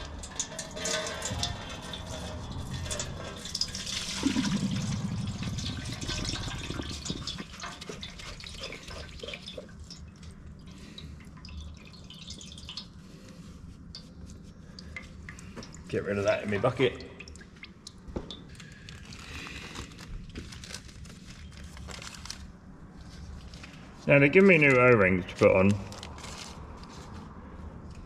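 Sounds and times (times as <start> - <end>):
fuel pouring into a bowl: 0.0 - 21.2
fuel dripping: 0.0 - 22.4.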